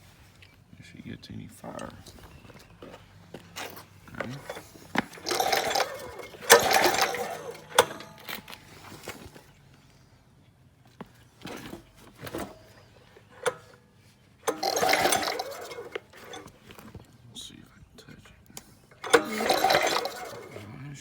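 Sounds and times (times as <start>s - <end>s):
recoil starter rope pulled: 1.6s - 9.6s, 11.3s - 17.1s, 18.6s - 21.0s.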